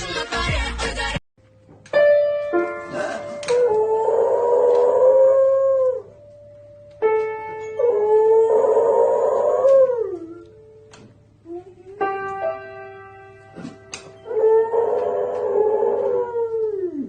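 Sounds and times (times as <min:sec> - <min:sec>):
piano music: 0:01.4 - 0:04.0, 0:05.4 - 0:08.6, 0:09.8 - 0:14.4
dog howling: 0:02.9 - 0:06.1, 0:07.8 - 0:10.6, 0:14.2 - 0:17.0.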